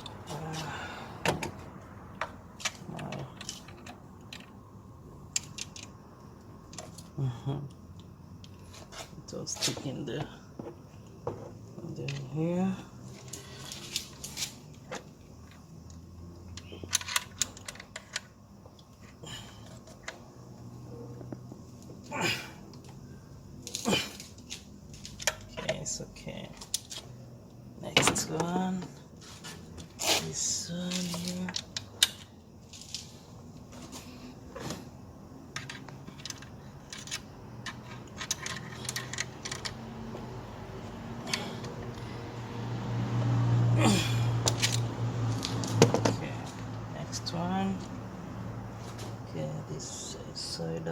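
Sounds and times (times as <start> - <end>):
plastic parts clicking: 5.3 - 6.0, 16.5 - 18.3, 35.5 - 39.8.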